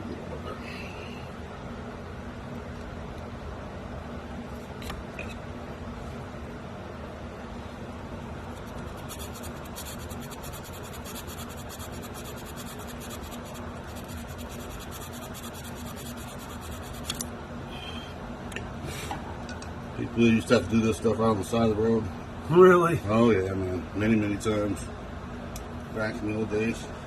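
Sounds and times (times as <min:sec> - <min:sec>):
steady low hum: 0:00.0 - 0:27.0
rapid filing strokes on metal: 0:08.6 - 0:17.2.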